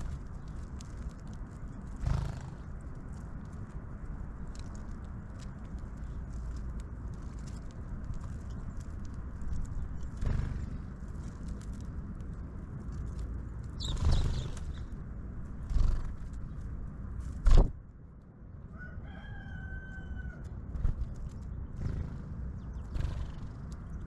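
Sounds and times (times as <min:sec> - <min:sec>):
steady low rumble: 0:00.0 - 0:24.0
drawn-out bird call: 0:13.8 - 0:15.0.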